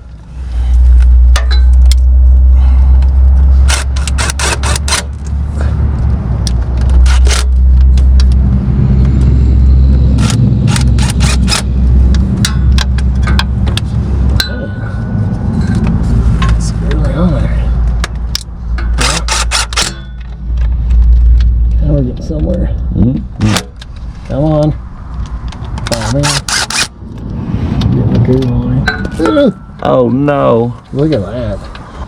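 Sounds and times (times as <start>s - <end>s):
steady low rumble: 0.0s - 32.0s
hand tool scraping and clicking metal: 3.6s - 5.4s, 6.5s - 8.4s, 10.2s - 14.5s, 18.0s - 20.7s, 25.2s - 26.9s.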